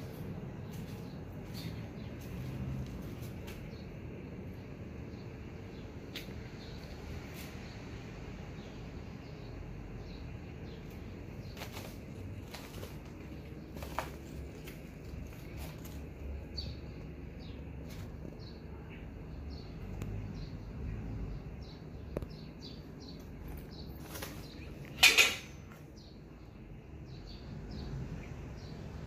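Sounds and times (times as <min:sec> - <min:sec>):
low steady hum: 0:00.0 - 0:29.0
small birds chirping: 0:00.0 - 0:29.0.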